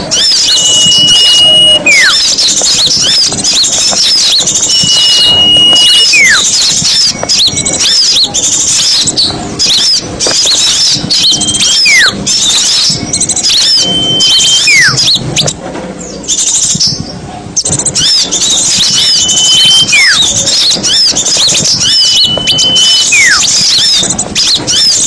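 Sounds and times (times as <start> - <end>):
songbirds chirping and twittering: 0.0 - 25.0
downward sliding whistle: 0.1 - 2.3, 4.2 - 7.2, 11.1 - 12.2, 13.5 - 15.2, 20.8 - 23.5
long level whistle: 0.1 - 2.4, 4.1 - 8.2, 10.8 - 15.2, 18.8 - 24.9.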